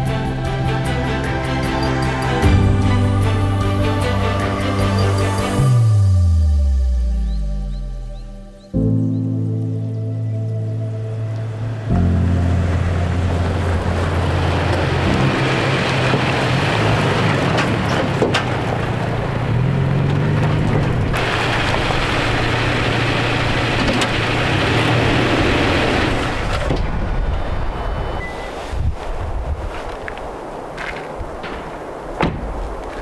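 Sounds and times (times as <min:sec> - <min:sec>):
vehicle engine drone: 0:00.0 - 0:28.8
road noise: 0:00.0 - 0:33.0
wind noise: 0:20.5 - 0:33.0.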